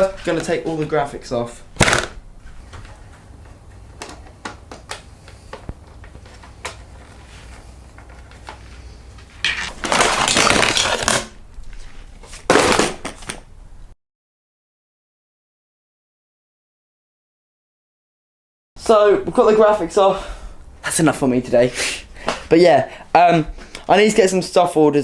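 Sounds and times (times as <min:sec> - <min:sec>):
vinyl ripping tear: 0:01.8 - 0:02.2, 0:06.1 - 0:13.5.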